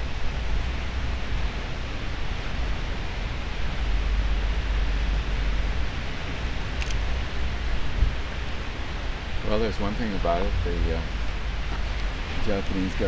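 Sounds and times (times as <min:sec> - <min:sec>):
wind buffeting microphone: 0:03.7 - 0:13.0.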